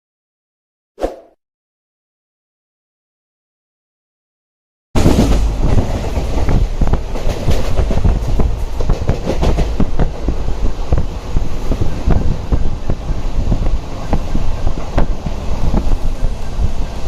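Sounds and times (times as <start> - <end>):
wheels clattering over track: 5.0 - 16.8
train rumbling on rails: 5.0 - 17.0.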